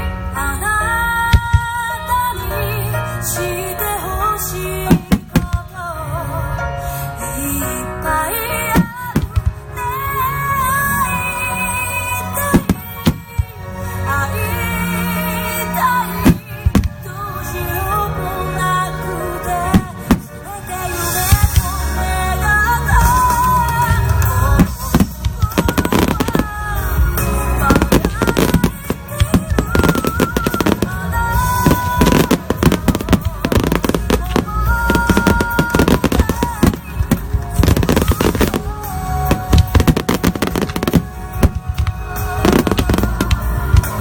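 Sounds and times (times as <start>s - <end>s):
music with a melody: 0.0s - 44.0s
fireworks bursting and crackling: 4.8s - 5.8s, 8.7s - 9.8s, 12.2s - 13.6s, 16.2s - 17.1s, 19.7s - 44.0s.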